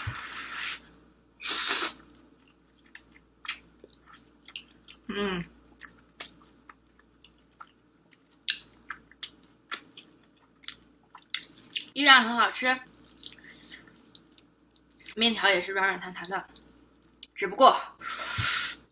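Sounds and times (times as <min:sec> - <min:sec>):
person slurping noodles: 0:01.4 - 0:02.0
person humming: 0:05.1 - 0:05.5.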